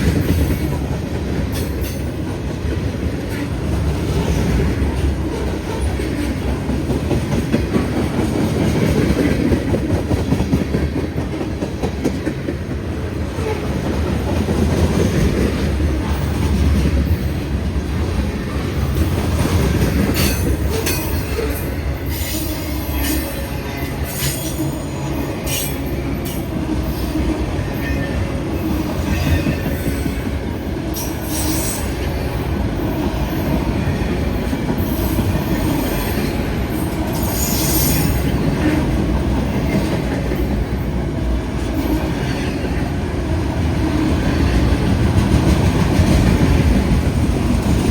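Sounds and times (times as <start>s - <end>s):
train wheels rumbling on rails: 0.0s - 47.9s
high wheel squeals: 20.1s - 26.4s, 37.1s - 38.3s.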